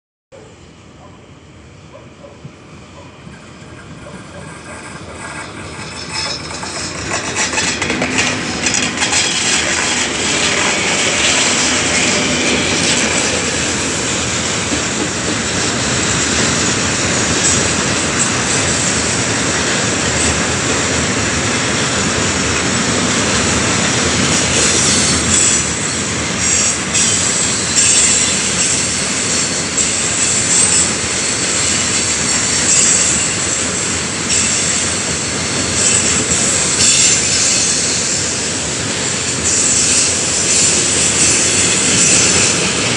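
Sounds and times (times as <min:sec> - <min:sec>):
train wheels rumbling and rattling: 0:02.2 - 0:42.9
wheels clacking over rail joints: 0:03.0 - 0:33.4, 0:34.2 - 0:42.9
high-pitched wheel noise: 0:03.4 - 0:19.0.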